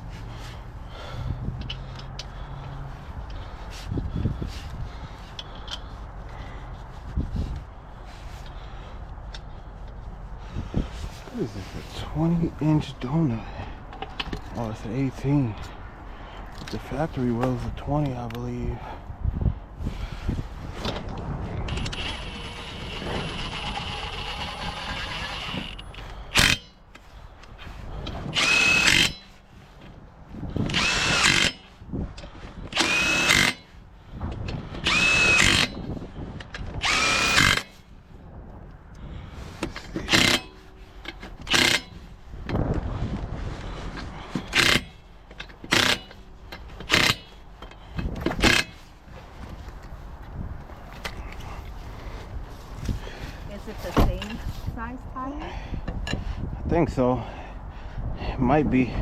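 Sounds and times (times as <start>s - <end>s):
impact wrench whining bursts: 21.7s - 26.8s, 28.2s - 29.4s, 30.6s - 31.7s, 32.7s - 33.7s, 34.6s - 35.8s, 36.8s - 37.8s, 39.7s - 42.0s, 44.2s - 48.8s.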